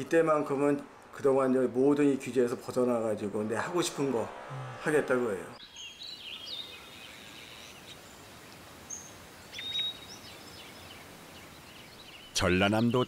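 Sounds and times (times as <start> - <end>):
steady outdoor hiss: 0.0 - 13.0
songbirds chirping and whistling: 5.5 - 13.0.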